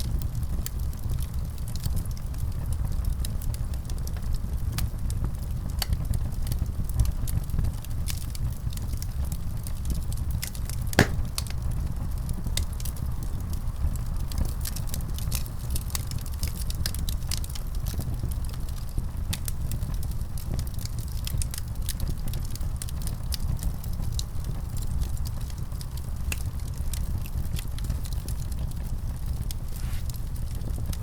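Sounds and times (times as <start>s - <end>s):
low rumble of burning: 0.0s - 31.0s
wood fire crackling: 0.0s - 31.0s
sharp pops from fire: 10.9s - 11.7s.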